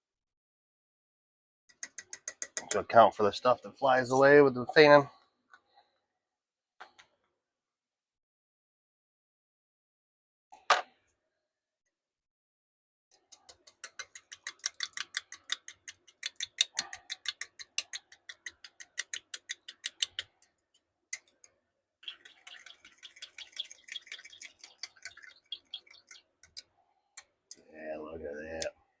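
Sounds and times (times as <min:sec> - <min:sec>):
utensil clicking against cup: 0:01.7 - 0:02.8, 0:13.2 - 0:20.4.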